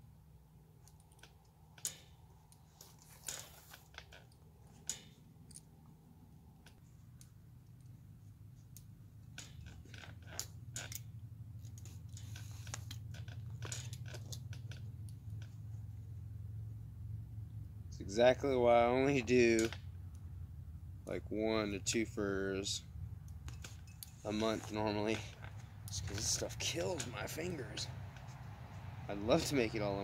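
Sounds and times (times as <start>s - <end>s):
needle and thread through hide: 0.8s - 7.2s, 11.6s - 16.0s, 23.4s - 30.0s.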